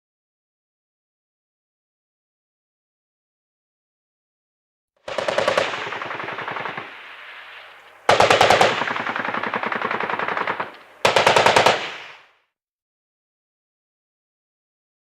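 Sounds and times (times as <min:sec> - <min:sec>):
machine-gun fire bursts: 0:05.1 - 0:12.3.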